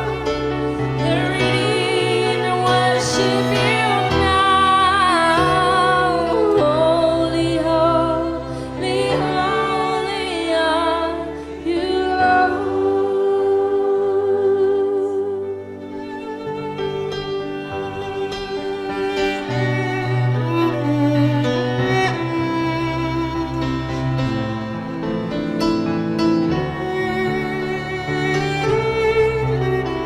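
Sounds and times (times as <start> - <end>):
keyboard and string chords: 0.0 - 30.0
woman singing wordless melody: 0.9 - 15.6.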